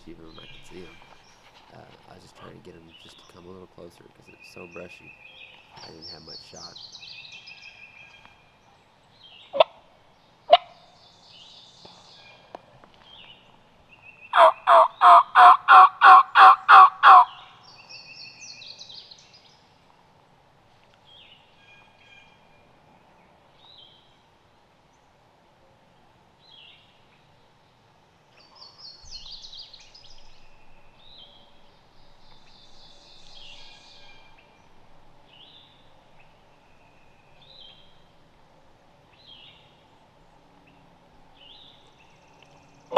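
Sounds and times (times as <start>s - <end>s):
songbirds chirping: 0.0s - 42.9s
turkey yelps: 14.3s - 17.4s.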